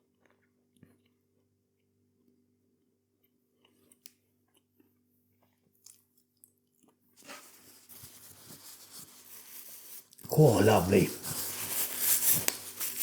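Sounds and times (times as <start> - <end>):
person chewing food: 0.0 - 2.4, 3.1 - 13.0
rustling noise: 7.2 - 13.0.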